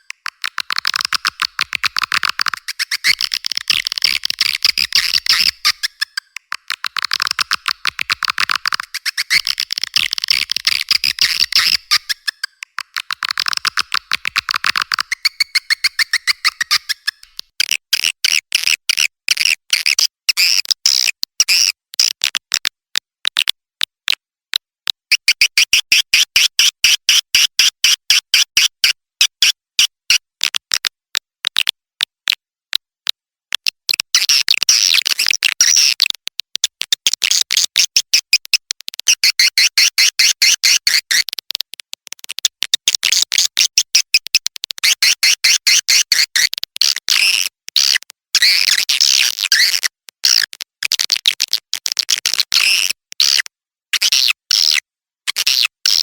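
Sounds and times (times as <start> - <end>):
high-pitched twittering chirps: 0.0 - 17.3
sharp bird clicks: 0.0 - 17.5.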